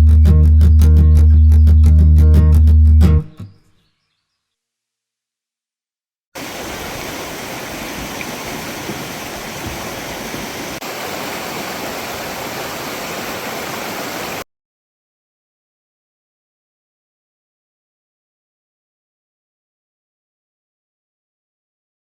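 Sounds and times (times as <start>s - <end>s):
creek water rushing: 6.4s - 14.4s.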